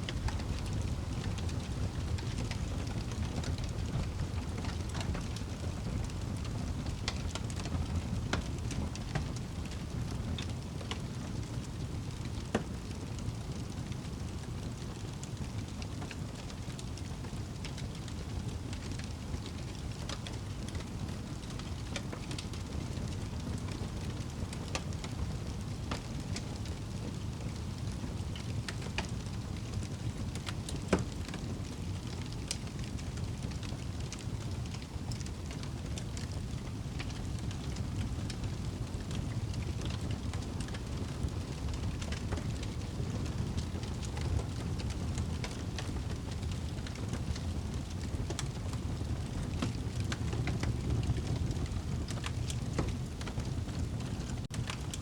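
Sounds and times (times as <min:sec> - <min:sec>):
fire crackling and popping: 0:00.0 - 0:55.0
fire flames rumbling: 0:00.0 - 0:55.0.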